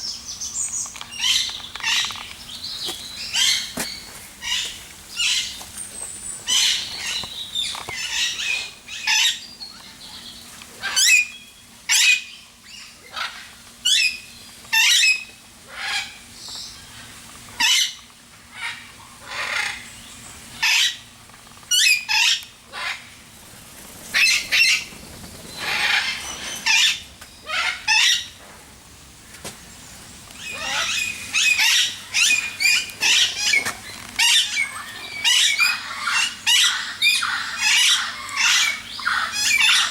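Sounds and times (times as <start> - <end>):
birds squawking harshly: 1.1 - 5.7, 6.4 - 10.0, 20.6 - 21.1, 24.1 - 28.4, 30.4 - 39.9.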